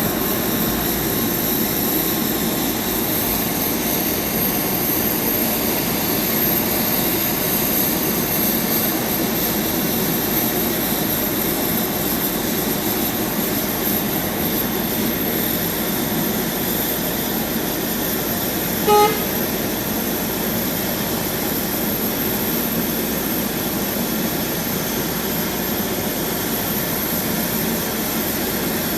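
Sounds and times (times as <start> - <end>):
airliner engine droning: 0.0 - 28.9
short horn-like beep: 18.8 - 19.5.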